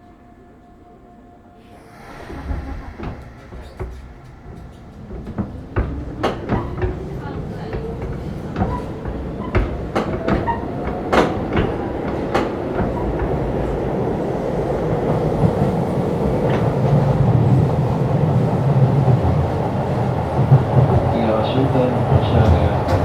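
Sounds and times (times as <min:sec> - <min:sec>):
train rumble and motor hum: 0:01.8 - 0:23.0
train wheels clicking over rail joints: 0:02.4 - 0:13.8, 0:20.3 - 0:23.0.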